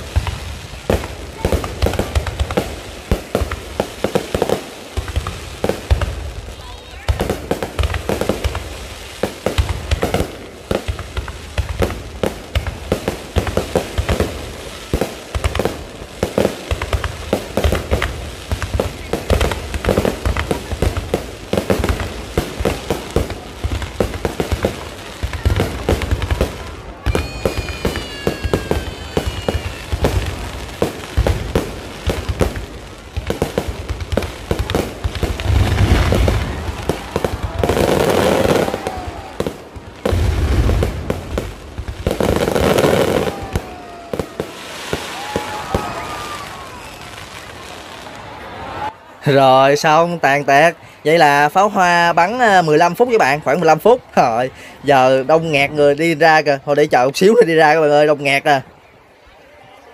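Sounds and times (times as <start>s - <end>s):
fireworks bangs and crackles: 0.0s - 59.9s
firework whistle: 25.4s - 30.5s, 42.2s - 49.0s.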